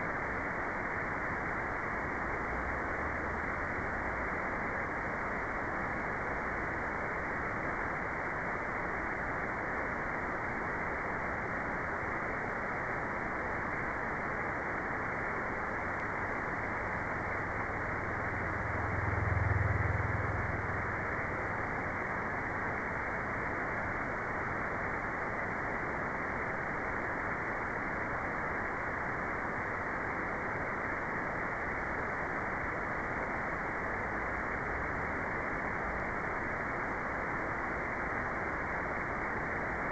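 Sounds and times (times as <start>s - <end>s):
muffled white noise: 0.0s - 39.9s
low rumble: 17.2s - 22.0s.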